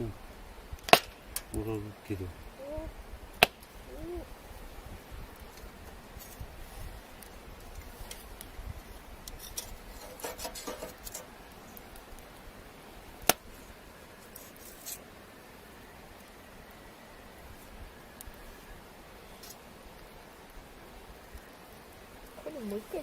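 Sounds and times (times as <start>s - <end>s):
campfire crackling: 0.0s - 23.0s
sharp loud pop: 0.8s - 1.2s.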